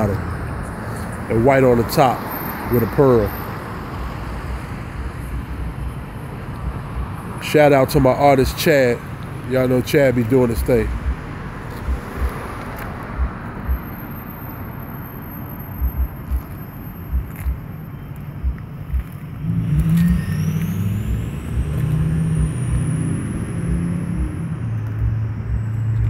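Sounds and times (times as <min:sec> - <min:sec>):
vehicle engine running: 0:09.1 - 0:26.0
low thumps: 0:17.1 - 0:17.6.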